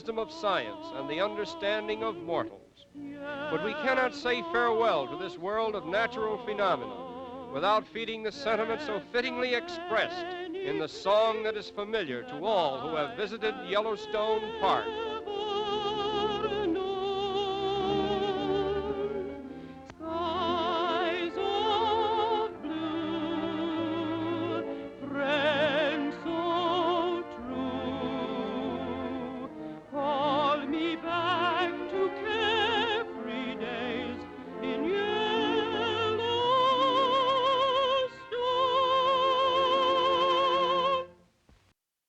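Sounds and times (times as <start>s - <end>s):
orchestral accompaniment: 0.0s - 40.2s
operatic solo singing: 0.0s - 41.2s.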